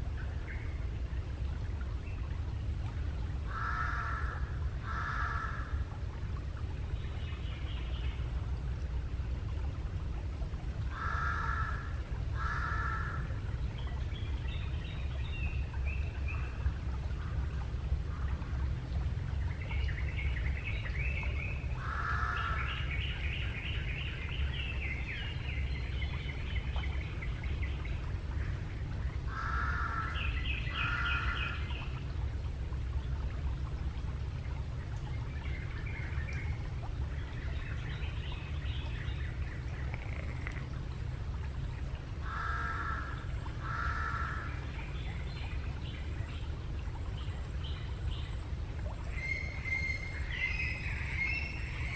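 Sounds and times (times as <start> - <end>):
crows cawing: 3.5 - 5.7, 10.9 - 13.2, 21.8 - 22.4, 29.3 - 30.1, 42.2 - 44.5.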